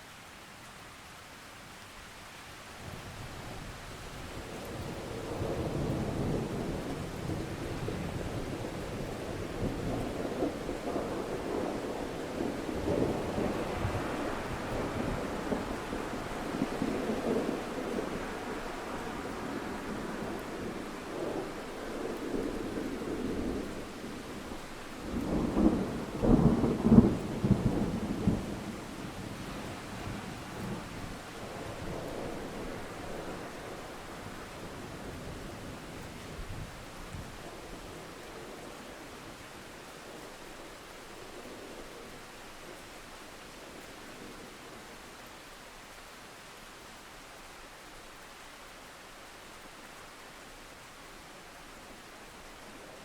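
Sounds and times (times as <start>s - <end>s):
steady rain: 0.0s - 53.0s
low roll of thunder: 2.8s - 45.2s.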